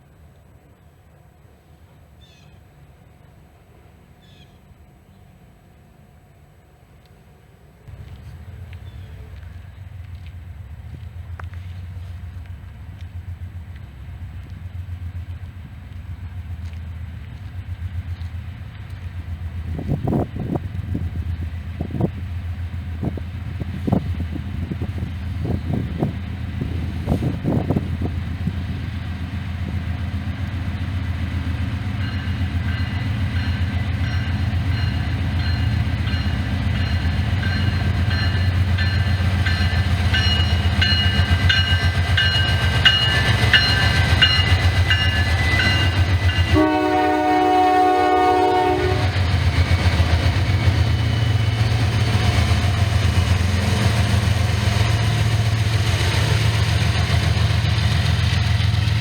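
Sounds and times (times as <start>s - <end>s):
train rumbling by: 0.0s - 59.0s
train horn blast: 43.0s - 49.3s.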